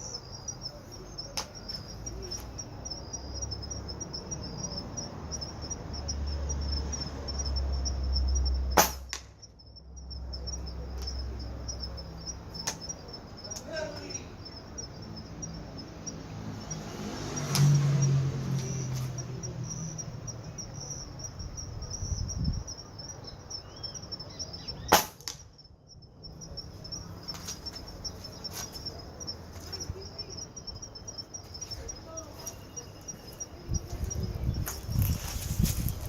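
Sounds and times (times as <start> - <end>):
insects chirping: 0.0 - 36.0
air rifle shot: 8.8 - 9.2, 24.9 - 25.3.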